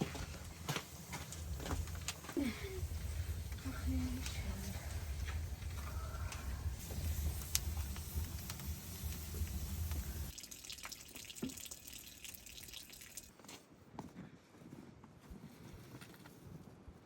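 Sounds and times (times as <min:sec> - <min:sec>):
water running and splashing: 0:06.7 - 0:13.3
water dripping: 0:08.4 - 0:13.3.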